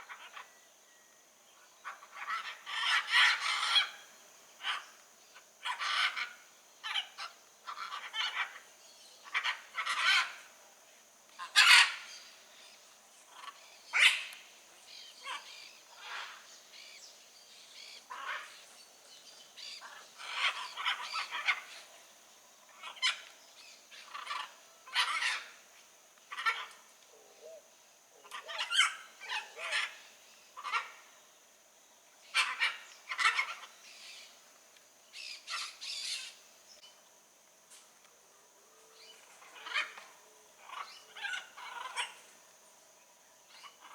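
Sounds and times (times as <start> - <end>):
macaws squawking: 28.2 - 30.0.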